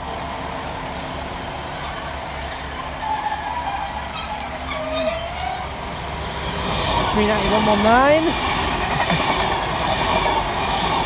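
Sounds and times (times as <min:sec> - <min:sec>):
electric train rumble: 0:00.0 - 0:11.0.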